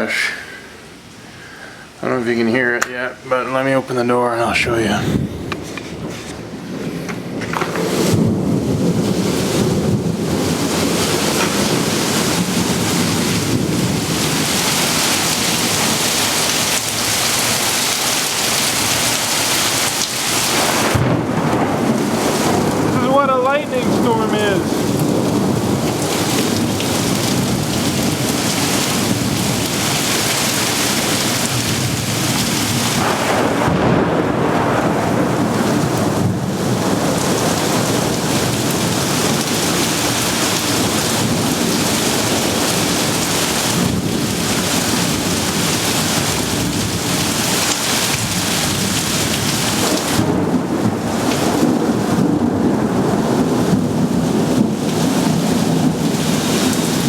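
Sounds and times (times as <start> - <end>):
heavy rain pouring: 0.0 - 57.0
thunder rumbling: 4.4 - 14.9, 20.5 - 29.9, 31.7 - 57.0.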